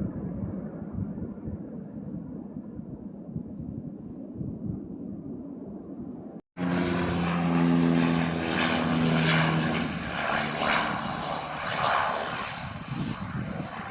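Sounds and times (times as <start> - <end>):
airplane engine noise: 4.2 - 13.9
steady hum: 6.6 - 13.9.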